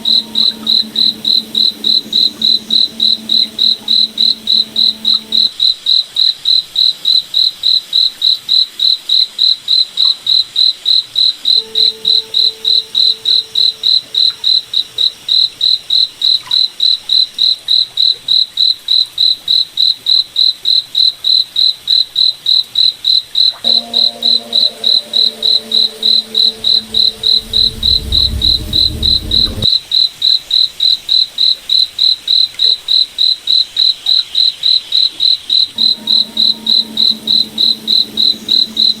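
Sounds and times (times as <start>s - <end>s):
low rumble: 0.0s - 5.4s, 25.6s - 29.7s
crickets chirping: 0.0s - 5.5s, 23.7s - 29.7s, 34.6s - 39.0s
faint low humming tones: 0.0s - 5.5s, 35.8s - 39.0s.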